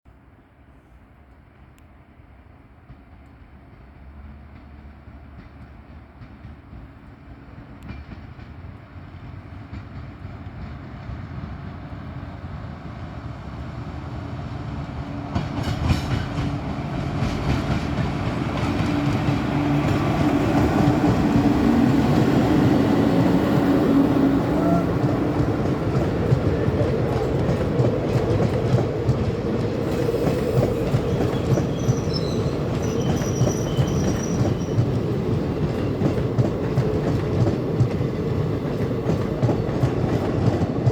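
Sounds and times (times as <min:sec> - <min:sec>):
train rumbling past: 0:00.6 - 0:40.9
train wheels clattering over joints: 0:15.3 - 0:23.4, 0:24.9 - 0:40.9.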